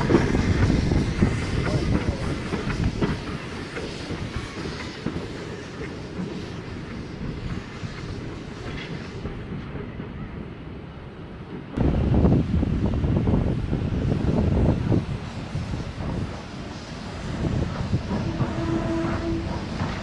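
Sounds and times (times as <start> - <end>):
train wheels clicking over rail joints: 0.0 - 9.9, 15.7 - 20.0.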